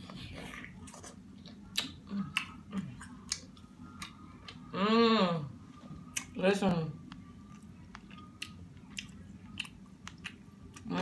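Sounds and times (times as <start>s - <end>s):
person humming: 4.6s - 5.6s
wet chewing: 7.1s - 11.0s.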